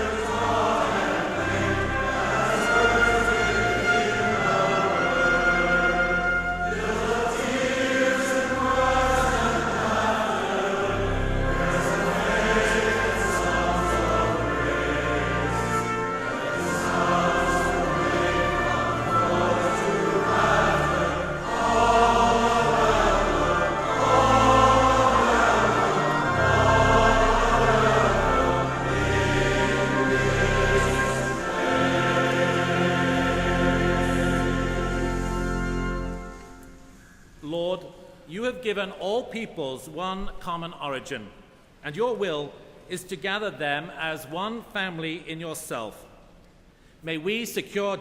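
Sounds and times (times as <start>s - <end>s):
choir singing: 0.0s - 37.0s
instrumental accompaniment: 0.0s - 37.4s.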